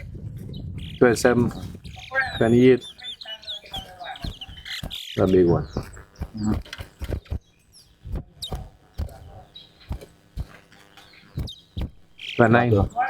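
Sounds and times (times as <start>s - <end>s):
person speaking: 1.0s - 7.3s, 8.1s - 11.0s, 12.1s - 13.0s
sharp clicks and knocks: 3.7s - 13.0s.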